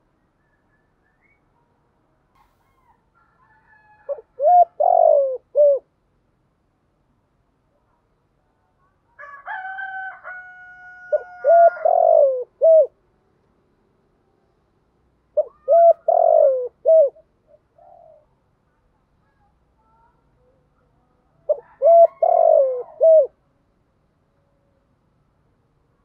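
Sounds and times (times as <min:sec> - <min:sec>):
dove cooing: 0:04.0 - 0:05.9, 0:11.1 - 0:13.0, 0:15.4 - 0:18.4, 0:21.4 - 0:23.4.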